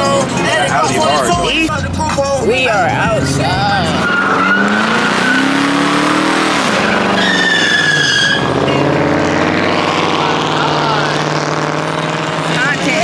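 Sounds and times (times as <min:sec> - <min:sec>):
car engine revving: 0:00.0 - 0:13.0
tire squeal: 0:03.0 - 0:12.7.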